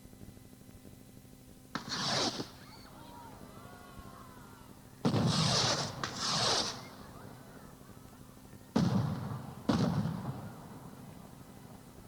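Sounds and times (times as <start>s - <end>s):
sharp bangs: 5.0s - 7.0s, 8.8s - 10.6s
loud hissing bursts: 5.1s - 7.0s.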